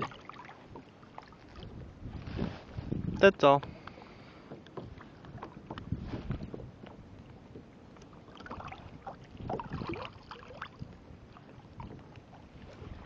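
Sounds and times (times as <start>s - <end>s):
water splashing against kayak: 0.0s - 13.0s
wind on microphone: 1.5s - 4.0s, 4.8s - 7.7s, 8.4s - 13.0s.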